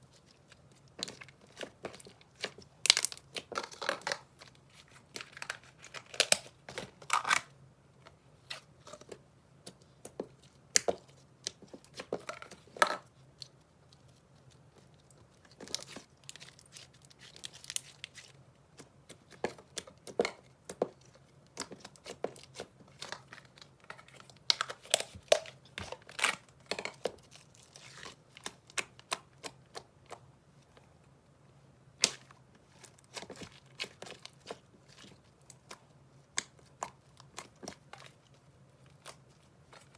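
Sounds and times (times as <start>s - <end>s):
slime popping and crackling: 0.9s - 4.4s.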